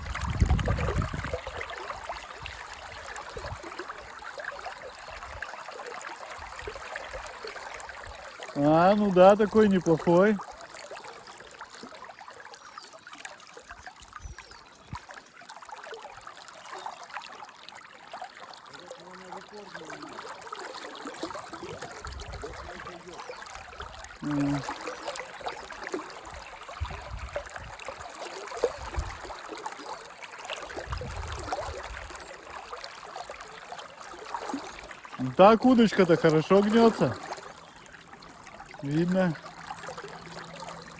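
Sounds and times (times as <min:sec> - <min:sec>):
wind rumbling on microphone: 0:00.0 - 0:01.6, 0:21.7 - 0:22.8, 0:26.8 - 0:27.8, 0:28.7 - 0:29.2, 0:30.8 - 0:32.1
river water running: 0:00.0 - 0:40.9.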